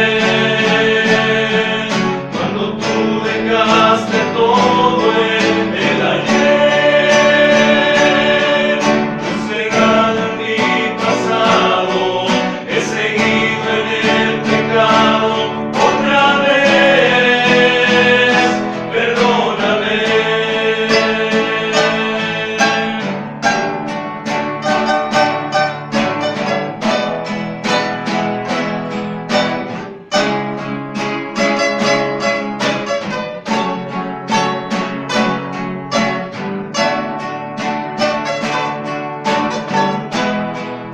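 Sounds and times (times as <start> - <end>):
male voices singing in harmony: 0.0 - 23.7
plucked and strummed guitars: 0.0 - 40.9.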